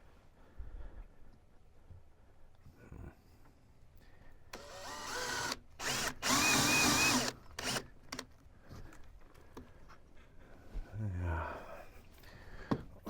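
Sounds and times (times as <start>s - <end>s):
power drill whining: 4.5s - 8.2s.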